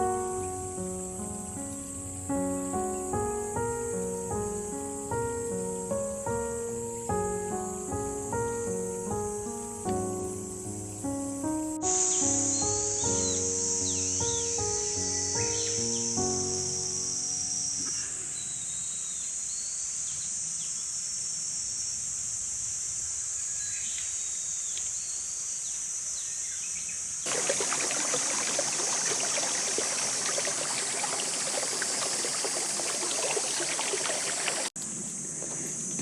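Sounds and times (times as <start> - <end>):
high insect drone: 0.0 - 36.0
flowing stream water: 27.3 - 34.8.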